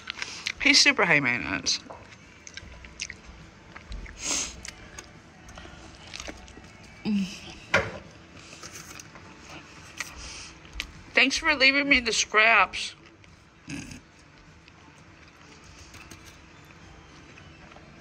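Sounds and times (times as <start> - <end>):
chewing and mouth noises: 2.0 - 7.6.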